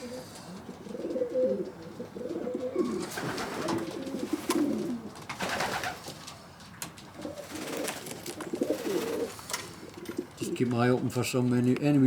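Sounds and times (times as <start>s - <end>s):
pigeons cooing: 0.0s - 6.4s, 7.1s - 10.8s.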